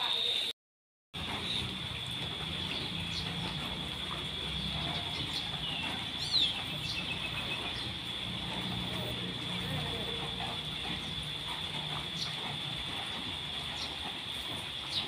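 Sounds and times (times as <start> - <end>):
songbirds chirping: 1.2 - 15.0.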